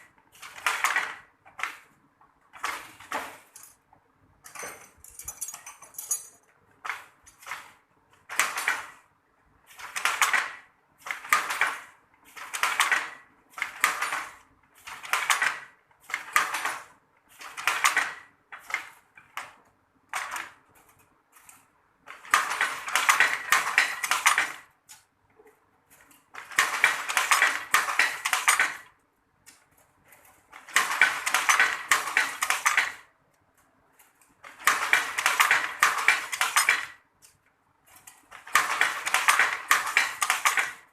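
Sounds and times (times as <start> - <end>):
hand loom clacking: 9.8 - 16.8, 22.2 - 24.7, 25.4 - 28.9, 30.5 - 33.0, 34.4 - 37.0, 37.9 - 40.9.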